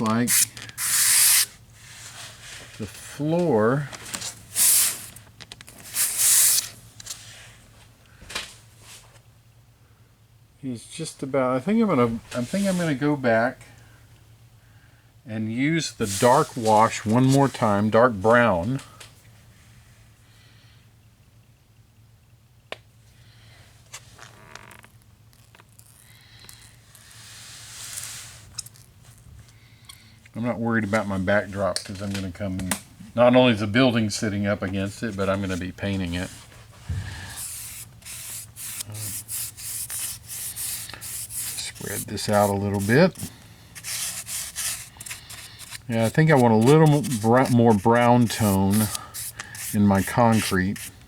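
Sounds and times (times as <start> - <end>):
brush rubbing on concrete floor: 0.0 - 2.5, 37.3 - 51.0
low background hum: 0.0 - 51.0.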